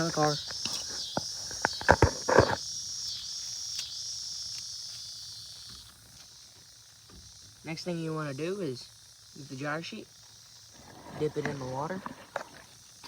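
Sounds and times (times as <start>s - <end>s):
insect chorus buzzing: 0.0s - 13.0s
knocks or rustles: 0.1s - 2.6s.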